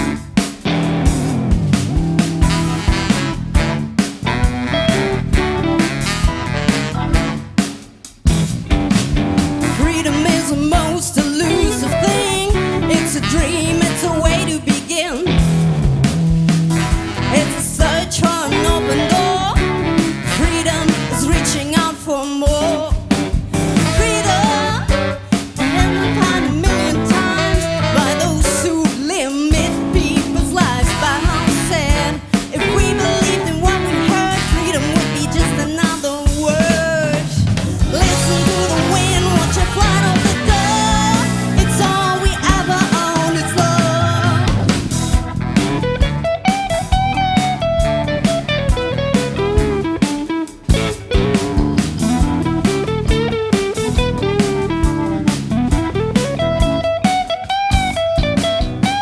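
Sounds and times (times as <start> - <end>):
jazz-rock band playing: 0.0 - 59.0
wavering melody line: 37.9 - 45.1.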